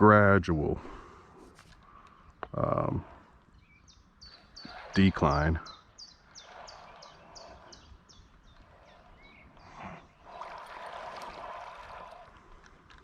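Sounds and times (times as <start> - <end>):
small bird calling: 1.8 - 12.4
water rushing: 10.2 - 12.4.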